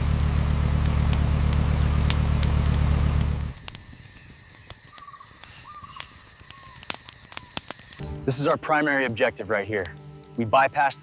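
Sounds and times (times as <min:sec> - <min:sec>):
engine drone: 0:00.0 - 0:03.6
faint clicks and crackles: 0:00.0 - 0:11.0.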